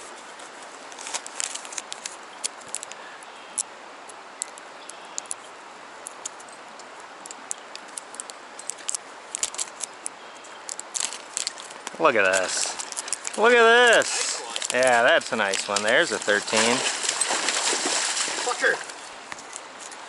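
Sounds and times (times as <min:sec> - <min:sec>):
stream rushing: 0:00.0 - 0:20.0.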